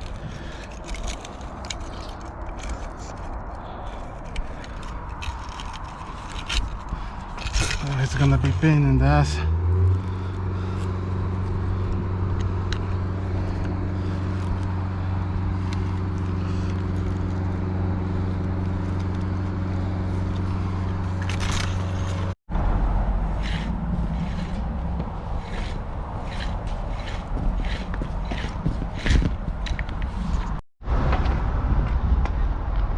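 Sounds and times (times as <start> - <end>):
low rough rumble: 0.0 - 32.9
diesel engine humming: 4.4 - 30.6.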